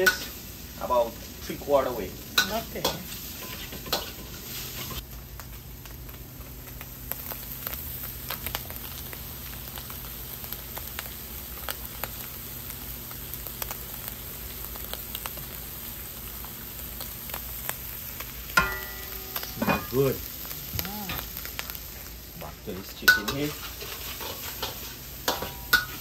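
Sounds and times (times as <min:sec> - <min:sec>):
chicken sizzling in a pan: 0:00.0 - 0:26.0
low steady hum: 0:17.3 - 0:23.7.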